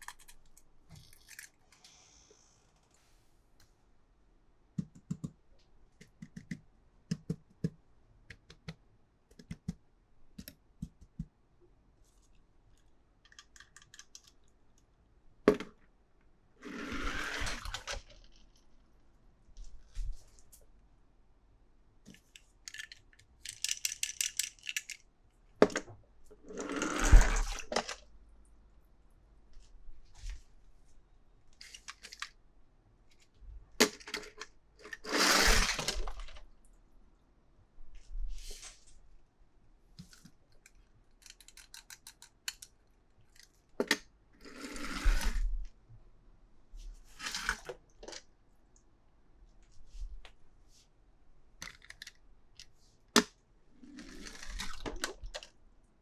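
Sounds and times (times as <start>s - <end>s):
small hard pieces clicking and rattling: 22.3s - 25.0s
rustling scrapes: 38.0s - 39.0s.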